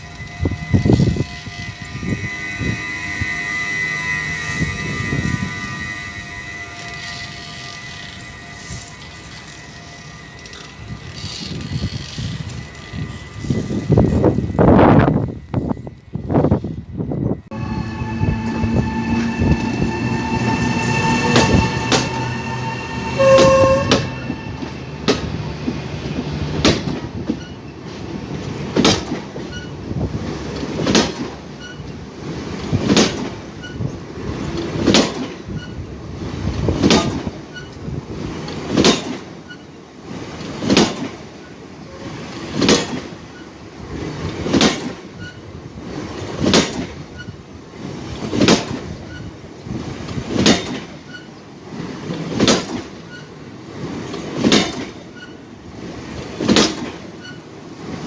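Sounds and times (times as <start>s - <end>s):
short train horn tone: 0.0s - 15.0s, 17.5s - 26.4s
steady train tones: 0.0s - 58.0s
train wheels clacking over rail joint: 6.7s - 14.4s, 17.5s - 58.0s.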